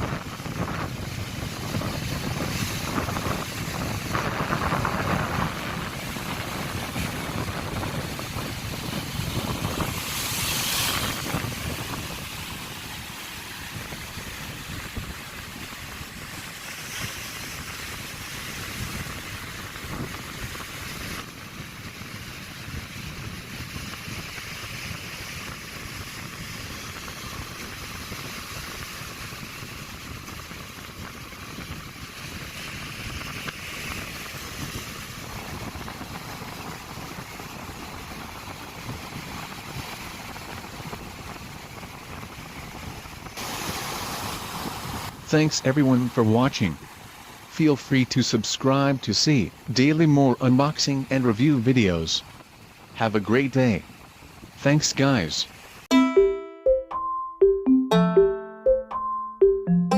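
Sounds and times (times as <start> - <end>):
wind on microphone: 0.0 - 45.3
sea surf washing on beach: 0.0 - 55.8.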